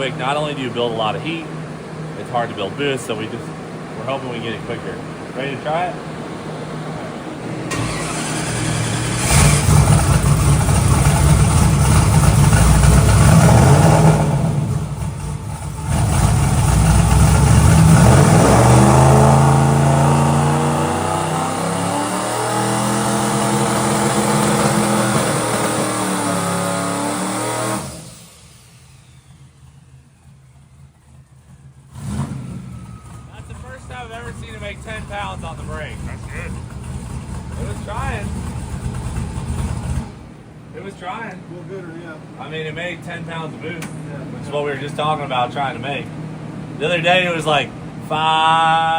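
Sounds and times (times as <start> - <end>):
truck engine revving against limiter: 7.7 - 29.6, 31.9 - 40.3.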